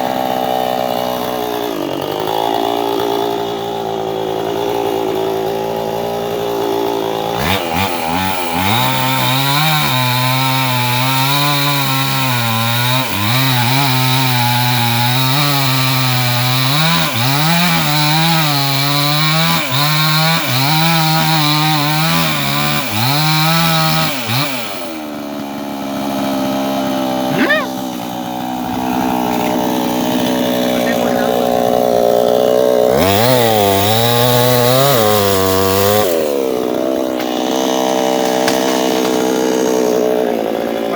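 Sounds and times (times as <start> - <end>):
chainsaw cutting tree: 0.0 - 40.9.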